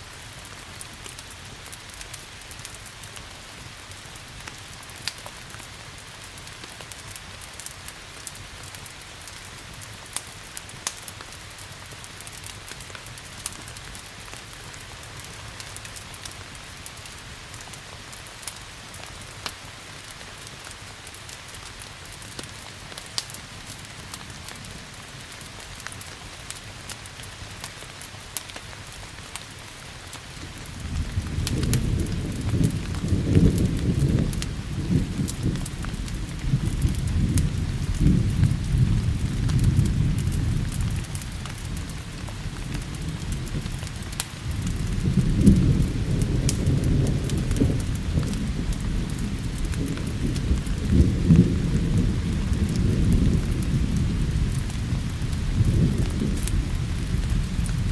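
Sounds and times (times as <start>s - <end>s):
steady rain hiss: 0.0s - 57.9s
wood fire crackling: 0.0s - 57.9s
thunder rumble: 30.4s - 57.9s.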